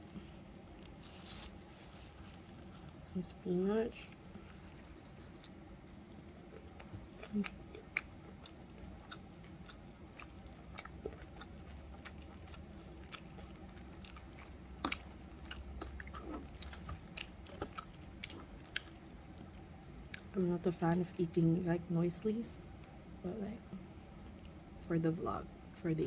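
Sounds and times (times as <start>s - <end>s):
person chewing food: 0.0s - 3.1s, 4.1s - 20.4s.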